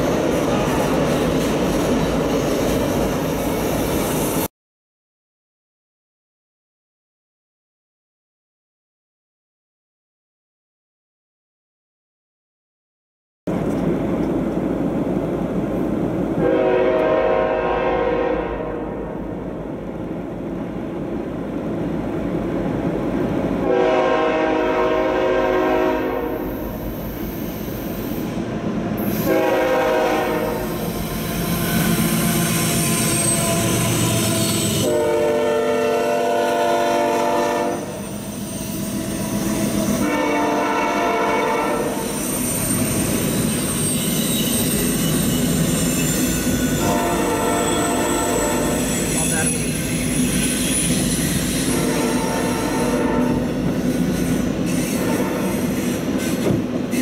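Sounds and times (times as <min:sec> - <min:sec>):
train wheels on rails: 0:00.0 - 0:04.5, 0:13.5 - 0:18.3, 0:19.6 - 0:57.0
train horn blasts: 0:16.4 - 0:19.2, 0:23.6 - 0:26.7, 0:29.0 - 0:30.9, 0:31.6 - 0:38.0, 0:39.8 - 0:42.1, 0:46.7 - 0:48.8, 0:51.6 - 0:53.6, 0:54.8 - 0:55.8.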